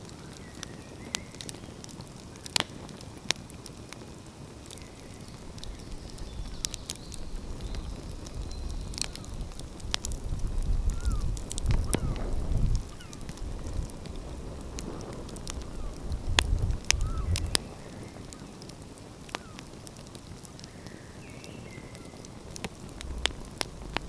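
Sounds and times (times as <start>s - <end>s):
wood fire crackling and popping: 0.0s - 24.0s
low rumble: 22.8s - 24.0s.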